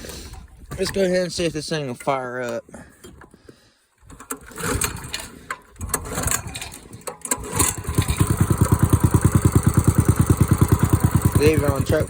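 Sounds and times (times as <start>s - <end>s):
small gasoline engine starting: 4.0s - 12.0s.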